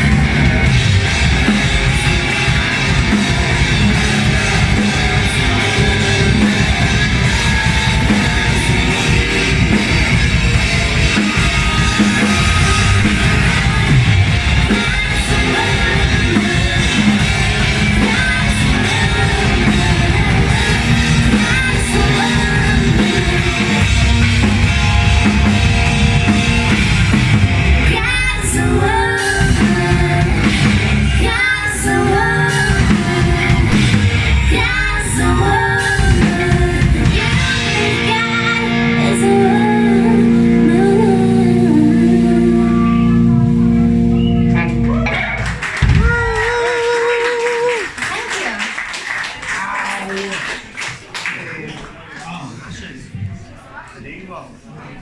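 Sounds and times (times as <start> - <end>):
live rock band playing: 0.0 - 49.0
singer's voice: 0.0 - 55.0.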